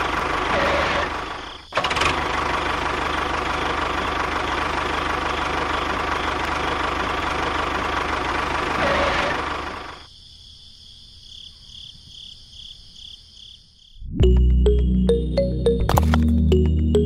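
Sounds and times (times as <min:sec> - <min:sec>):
model tractor engine running: 0:00.0 - 0:10.0
music: 0:14.1 - 0:17.0.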